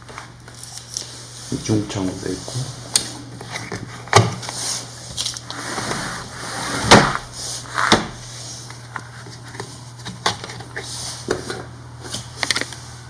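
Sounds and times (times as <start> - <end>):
window sash sliding scrape: 5.5 - 8.3.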